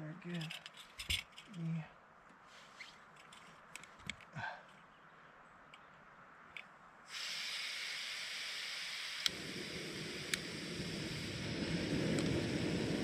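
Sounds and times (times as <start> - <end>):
gas stove hissing: 7.1 - 13.0
rushing flame: 7.1 - 13.0
burner igniter click: 9.1 - 9.4, 10.2 - 10.5.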